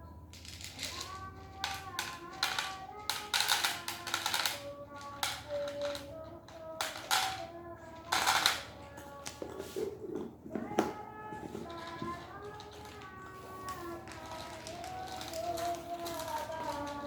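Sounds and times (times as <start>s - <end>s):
cats crunching dry kibble: 0.4s - 8.7s, 10.6s - 17.0s.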